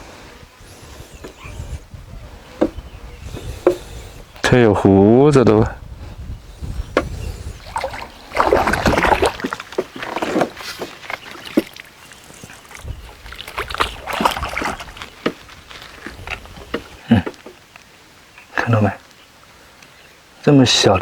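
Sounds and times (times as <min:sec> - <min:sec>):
fish thrashing water splashing: 0:07.4 - 0:17.0.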